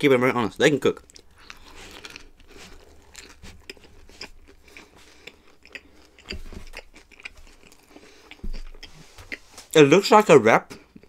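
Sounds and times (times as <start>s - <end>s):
chewing and biting wrap: 1.0s - 9.8s.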